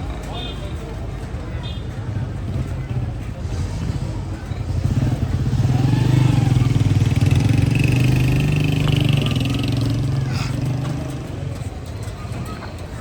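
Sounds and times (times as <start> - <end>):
vehicle engine passing: 3.5 - 12.0.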